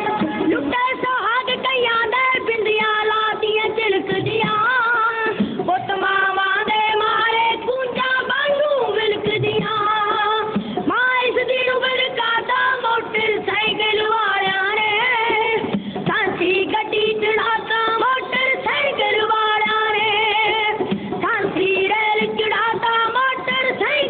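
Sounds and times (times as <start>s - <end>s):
instrumental accompaniment: 0.0s - 11.4s.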